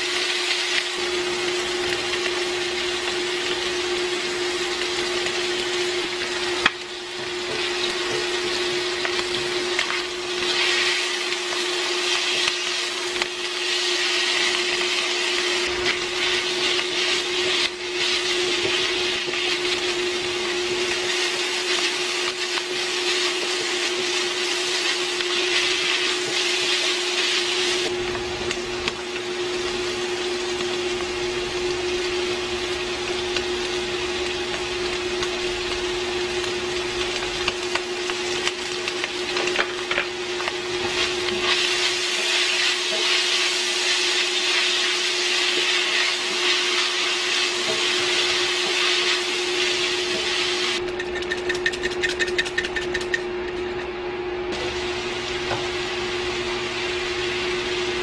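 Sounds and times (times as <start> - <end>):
meat and onion sizzling in a wok: 0.0 - 53.7, 54.5 - 58.0
spatula stirring in a wok: 6.2 - 27.9, 33.3 - 53.8.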